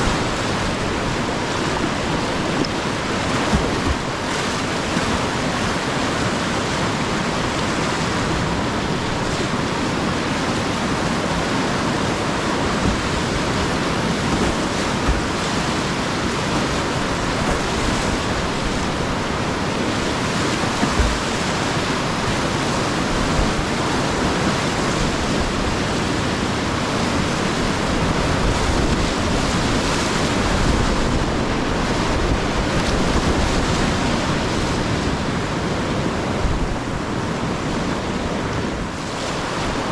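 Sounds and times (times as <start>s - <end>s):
whitewater rapids rushing: 0.0s - 39.9s
low thumps: 12.7s - 15.7s.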